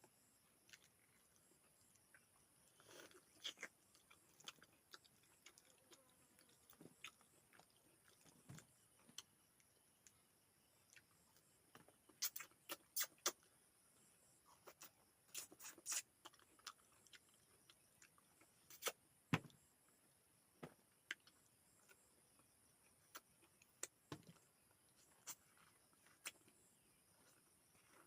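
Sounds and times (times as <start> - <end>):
person chewing with mouth clicks: 0.7 - 8.3, 12.0 - 13.4, 14.6 - 19.0
small crunches: 2.0 - 9.3.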